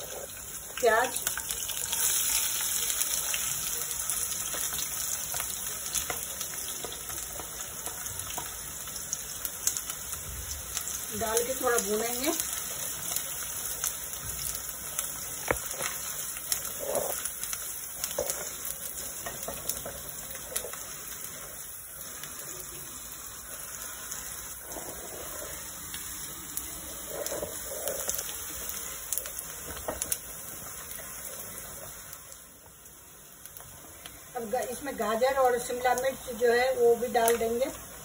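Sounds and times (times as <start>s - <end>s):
onions sizzling in a pan: 0.0s - 38.0s
wooden spatula scraping a pan: 15.5s - 21.4s, 23.8s - 28.8s.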